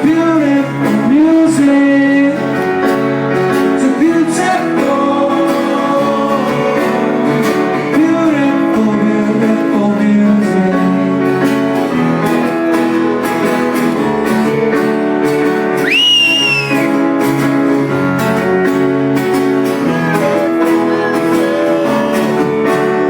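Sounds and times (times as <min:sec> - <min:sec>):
live rock band playing: 0:00.0 - 0:23.0
shrill whistle: 0:15.8 - 0:17.0.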